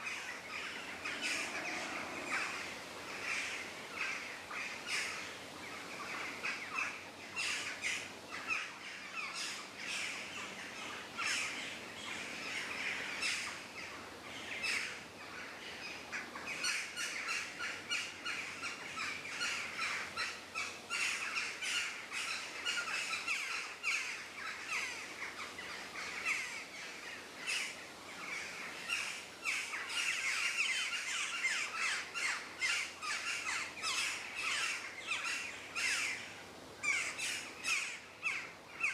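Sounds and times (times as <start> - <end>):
birds chirping and calling: 0.0 - 38.9.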